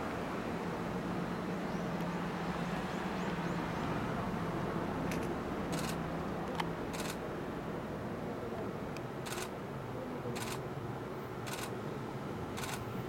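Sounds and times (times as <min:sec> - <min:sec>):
camera shutters clicking: 0:05.1 - 0:06.0, 0:06.6 - 0:07.2, 0:09.3 - 0:09.5, 0:10.4 - 0:10.6, 0:11.5 - 0:11.7, 0:12.6 - 0:12.8.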